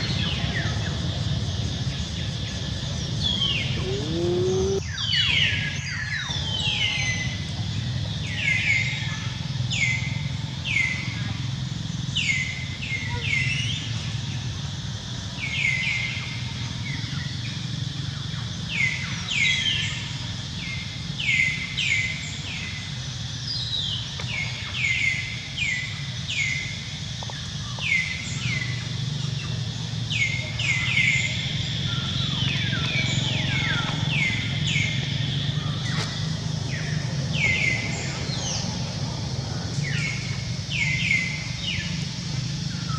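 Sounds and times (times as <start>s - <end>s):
birds chirping: 2.6s - 4.8s.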